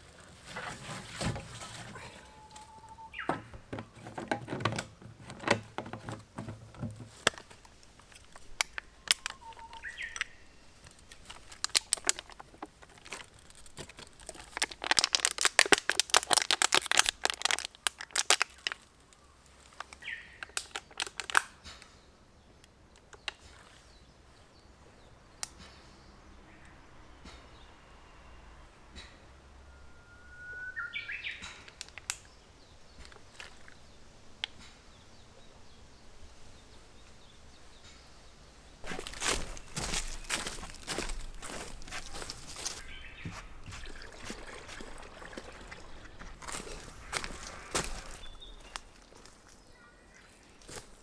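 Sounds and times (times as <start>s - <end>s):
clicks and crinkling: 0.0s - 22.0s, 31.2s - 34.7s, 38.8s - 51.0s
rapid crackling: 8.1s - 18.9s
short bird chirps: 9.3s - 10.6s.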